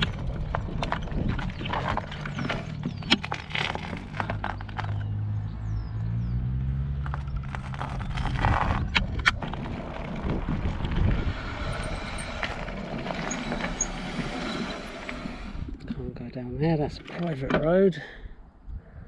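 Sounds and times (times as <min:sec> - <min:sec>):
road and wind rumble: 0:00.0 - 0:19.0
vehicle engine passing: 0:04.9 - 0:15.7.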